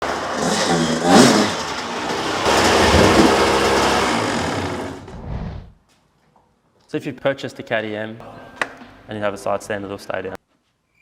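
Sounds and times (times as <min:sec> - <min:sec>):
dirtbike engine revving: 0:00.0 - 0:05.2.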